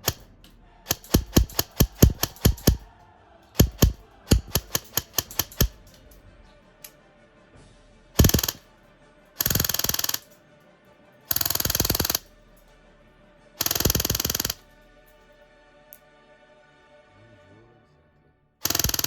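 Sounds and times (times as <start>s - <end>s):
airsoft gun firing bursts: 0.0s - 0.3s, 0.9s - 2.9s, 3.6s - 5.9s, 8.2s - 8.6s, 9.4s - 10.3s, 11.3s - 12.3s, 13.6s - 14.6s, 18.6s - 19.0s.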